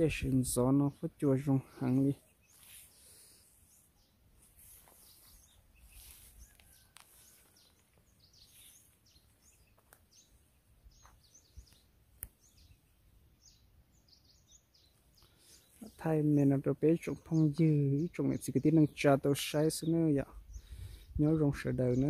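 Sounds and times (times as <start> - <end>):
wild birds calling: 0.0 - 16.3.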